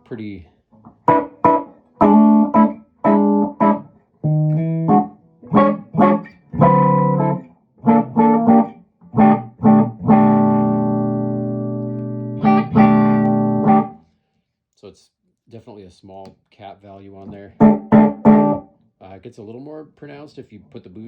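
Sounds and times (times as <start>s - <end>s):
electric guitar chords and notes: 0.8s - 14.0s, 17.5s - 18.7s.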